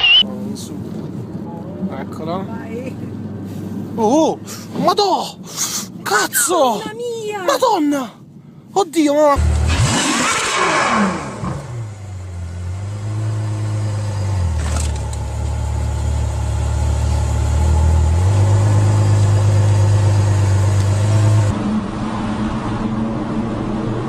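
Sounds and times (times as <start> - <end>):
quieter vehicle sound: 0.0 - 9.8.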